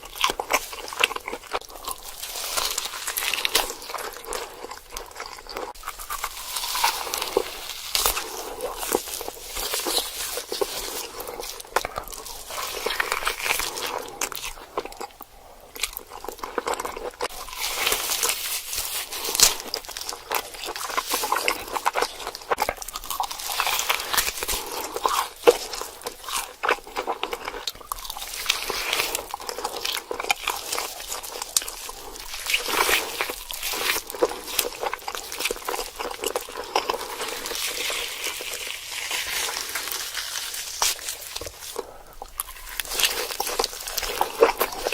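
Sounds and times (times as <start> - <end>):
chewing crunchy food: 0.0 - 44.9.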